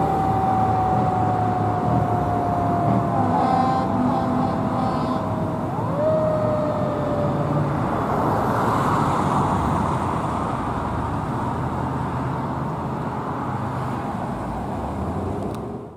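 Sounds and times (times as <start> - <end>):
siren tone sliding down: 0.0 - 7.8
heavy engine and road noise: 0.0 - 15.9.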